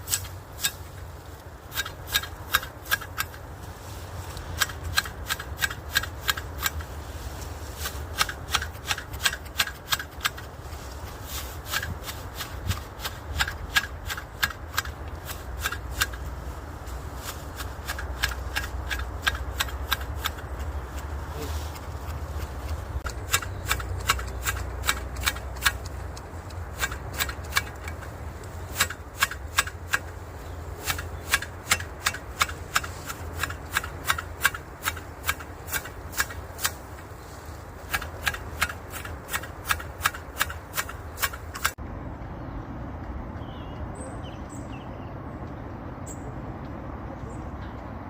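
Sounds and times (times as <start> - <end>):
small birds chirping: 20.5 - 24.8, 42.4 - 46.4.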